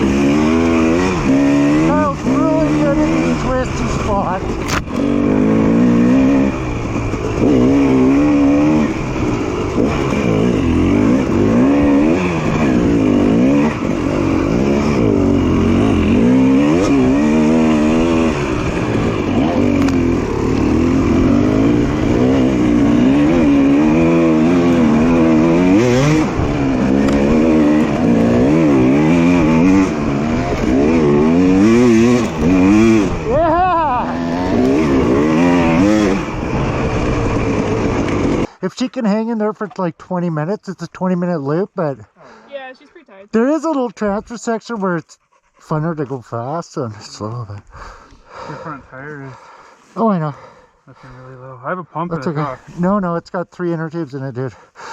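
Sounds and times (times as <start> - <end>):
dirt bike engine revving: 0.0 - 38.6.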